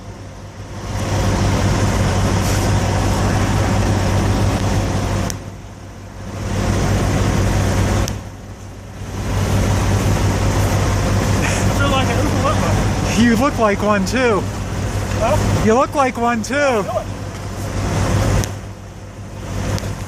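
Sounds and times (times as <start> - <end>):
trucks idling: 0.0 - 20.0
loud rushing noise: 1.0 - 5.6.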